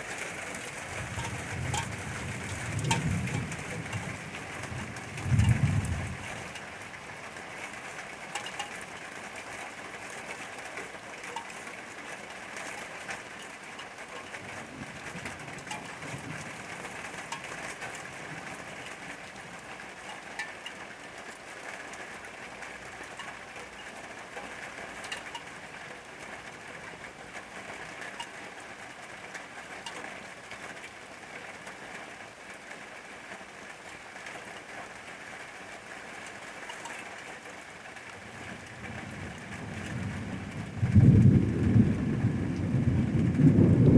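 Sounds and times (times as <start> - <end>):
rain falling: 0.0 - 43.9.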